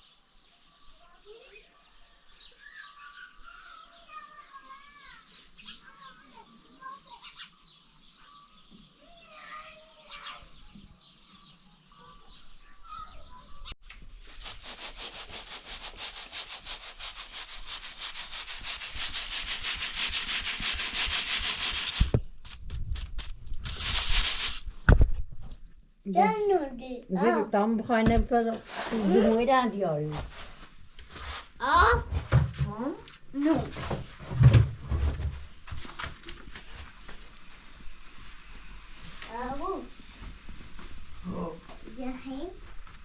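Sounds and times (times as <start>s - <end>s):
bird chirps: 0.0s - 13.8s
fast rhythmic scraping: 14.4s - 24.6s.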